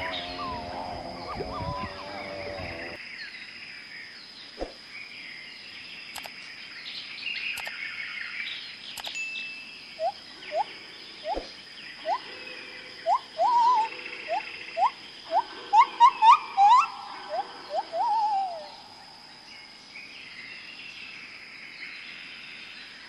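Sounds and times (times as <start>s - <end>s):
bird chirps: 0.0s - 3.0s, 7.3s - 20.4s
high-pitched insect drone: 0.0s - 3.0s
low steady tones: 0.0s - 3.0s
short rising calls: 0.0s - 3.0s
sharp clicks: 6.1s - 6.4s, 7.5s - 7.8s, 8.9s - 9.2s.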